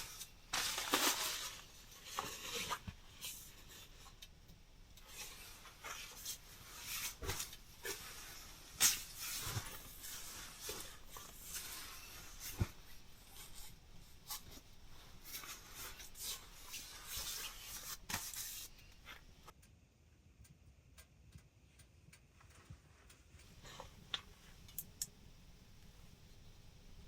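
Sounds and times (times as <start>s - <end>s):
rustling and scraping of gear: 0.0s - 4.3s, 5.0s - 19.5s.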